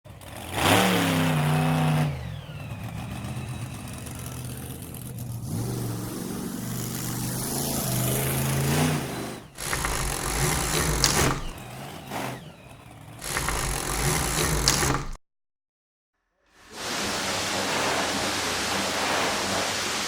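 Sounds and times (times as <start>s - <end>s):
car engine revving: 0.1s - 15.2s.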